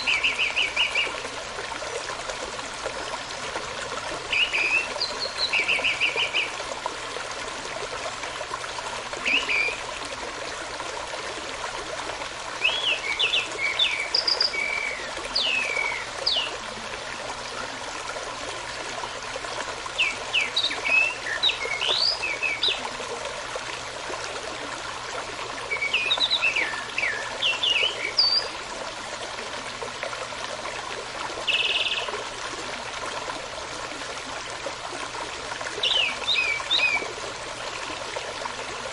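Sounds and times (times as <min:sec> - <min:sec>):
songbirds singing: 0:00.0 - 0:01.2, 0:04.3 - 0:06.6, 0:09.2 - 0:09.9, 0:12.6 - 0:16.6, 0:20.0 - 0:22.8, 0:25.7 - 0:28.6, 0:31.4 - 0:32.2, 0:35.8 - 0:37.1
brook running: 0:00.0 - 0:38.9.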